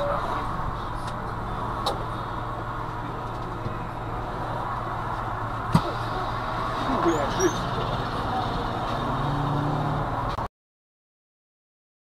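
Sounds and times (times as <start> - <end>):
car engine idling hum: 0.0 - 9.3
traffic noise: 0.0 - 10.5.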